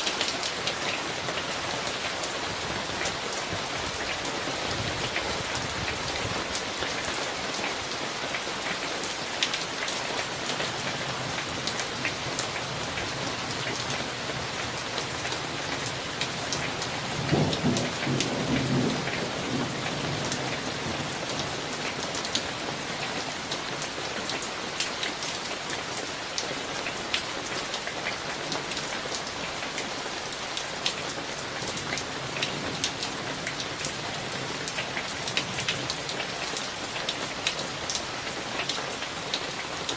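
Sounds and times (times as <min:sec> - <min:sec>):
rain with drops ticking: 0:00.0 - 0:39.9
thunder rumbling: 0:17.0 - 0:21.2.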